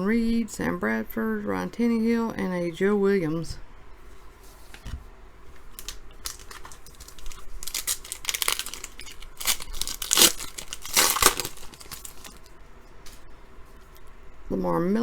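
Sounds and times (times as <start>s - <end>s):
wrapper tearing and crinkling: 5.8s - 12.5s.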